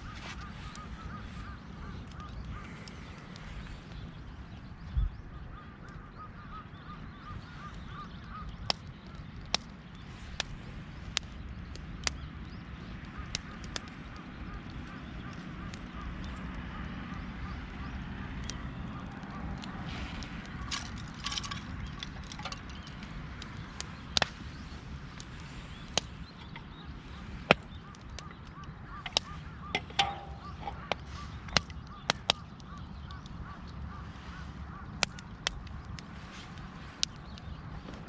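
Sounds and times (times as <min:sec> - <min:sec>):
distant geese honking: 0:00.0 - 0:03.9, 0:13.0 - 0:37.1
wood fire crackling: 0:00.0 - 0:04.8, 0:06.9 - 0:38.0.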